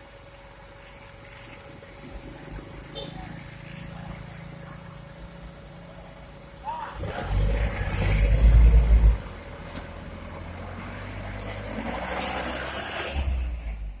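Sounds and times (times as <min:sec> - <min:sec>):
diesel engine revving: 0:06.9 - 0:14.0.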